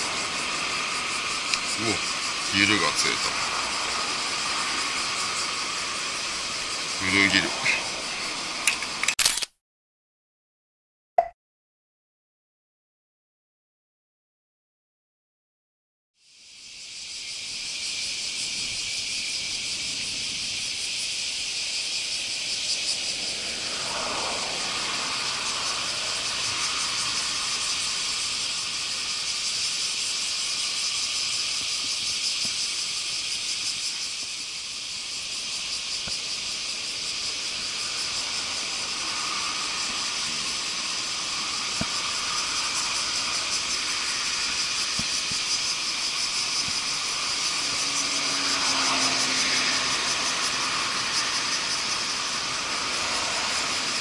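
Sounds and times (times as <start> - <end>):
cicadas chorus: 0.0 - 9.2, 16.2 - 54.0.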